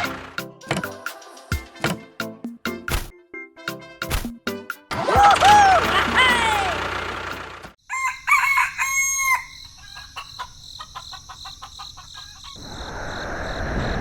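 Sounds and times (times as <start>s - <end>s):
rooster crowing: 7.8s - 12.8s
chicken clucking: 7.9s - 12.8s.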